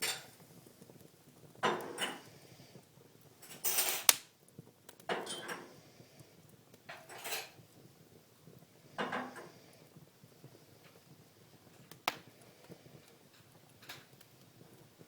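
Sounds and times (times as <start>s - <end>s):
wood fire crackling: 0.0s - 15.0s
sharp fire pop: 4.1s - 4.3s.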